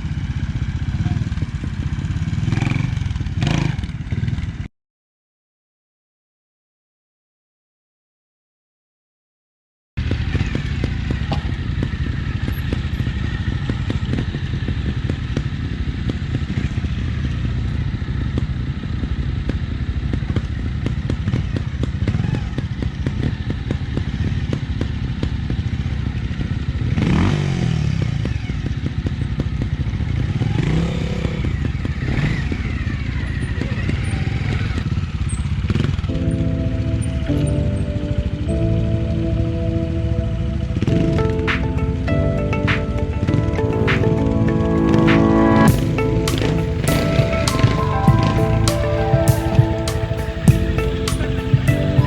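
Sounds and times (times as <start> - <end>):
motorcycle engine clattering and revving: 0.0 - 4.7, 10.0 - 36.1, 45.7 - 48.8, 50.4 - 52.0.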